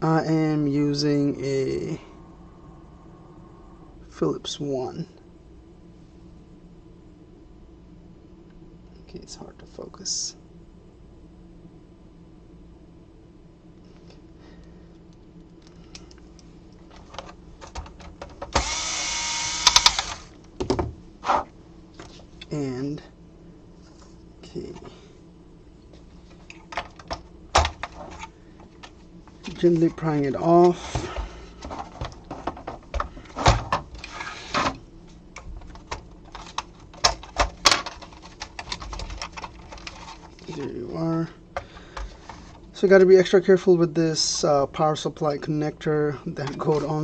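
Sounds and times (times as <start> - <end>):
electric screwdriver whirring: 18.5 - 20.3
plastic scraping: 35.6 - 40.7.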